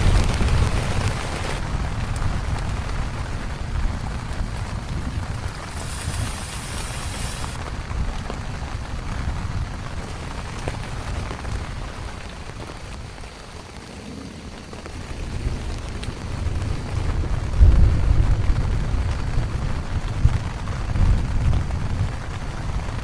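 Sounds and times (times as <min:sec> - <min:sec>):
steady rain falling: 0:00.0 - 0:23.0
high hiss: 0:05.5 - 0:07.6.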